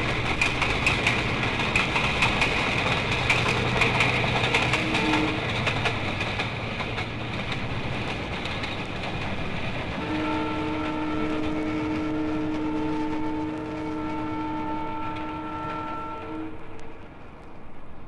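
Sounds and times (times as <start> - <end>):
train rumbling with clicking wheels: 0.0 - 18.0
train horn chord: 4.6 - 5.5, 10.0 - 17.0.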